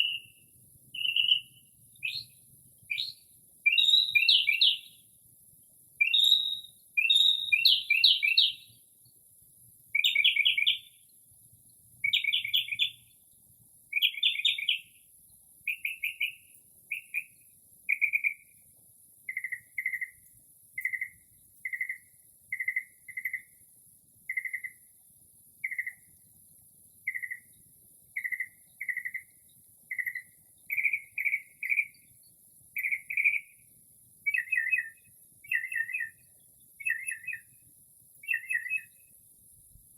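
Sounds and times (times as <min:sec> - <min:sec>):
mockingbird singing: 0:00.0 - 0:05.0, 0:06.0 - 0:08.8, 0:09.9 - 0:11.0, 0:12.0 - 0:13.2, 0:13.9 - 0:15.0, 0:15.6 - 0:18.6, 0:19.3 - 0:20.2, 0:20.8 - 0:23.6, 0:24.3 - 0:24.9, 0:25.6 - 0:26.1, 0:27.0 - 0:33.6, 0:34.2 - 0:37.6, 0:38.2 - 0:39.1.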